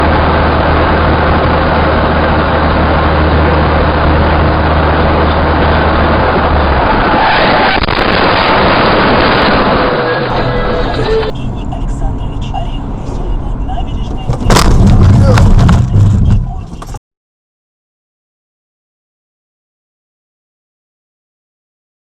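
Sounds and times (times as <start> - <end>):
low hum: 0.0 - 7.2, 7.8 - 17.0
car road and engine noise: 0.0 - 17.0.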